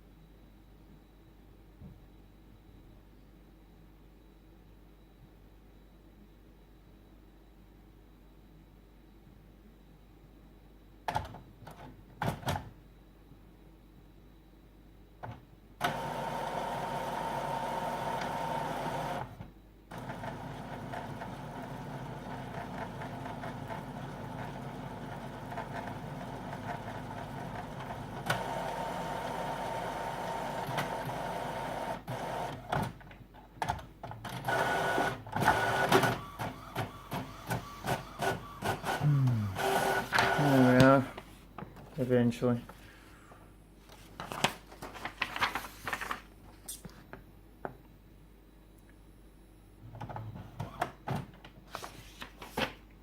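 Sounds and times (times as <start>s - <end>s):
printer mechanical whirring: 15.8s - 33.0s, 33.7s - 41.6s, 49.9s - 51.5s
printer clicks: 39.6s - 41.2s.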